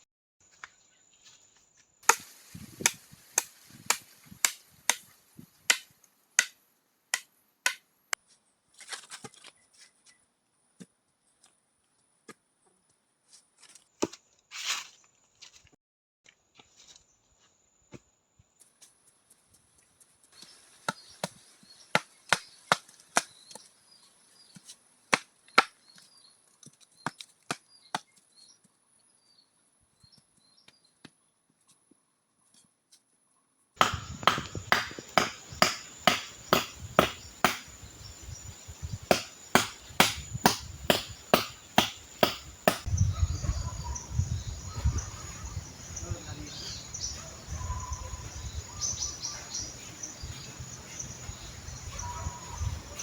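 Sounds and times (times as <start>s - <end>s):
wood chopping strikes: 2.0s - 7.8s, 33.8s - 42.9s
high insect drone: 33.8s - 42.8s.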